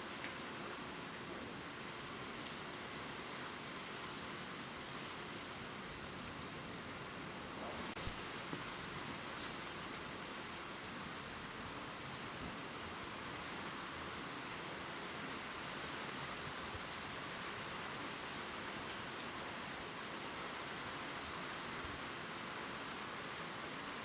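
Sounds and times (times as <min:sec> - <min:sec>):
gentle rain on leaves: 0:00.0 - 0:24.0
faint high drip ticks: 0:00.2 - 0:00.4, 0:16.1 - 0:19.1.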